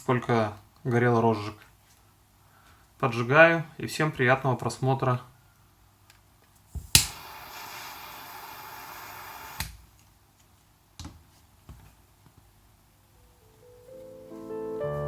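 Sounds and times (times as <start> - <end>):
lighter flame hissing: 6.7 - 9.8
lighter clicking: 6.8 - 9.8.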